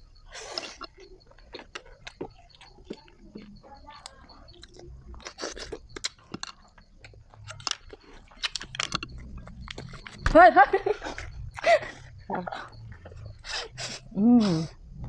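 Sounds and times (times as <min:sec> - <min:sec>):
person chewing food: 0:00.0 - 0:14.1
clicks and crunches: 0:00.4 - 0:10.4.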